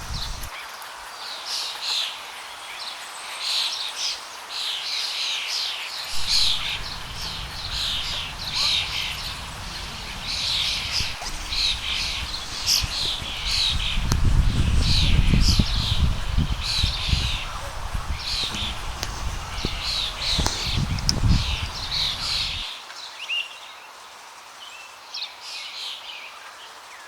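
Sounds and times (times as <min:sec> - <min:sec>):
birds chirping: 0:00.0 - 0:00.5, 0:06.1 - 0:22.7
low rumble: 0:06.1 - 0:22.7.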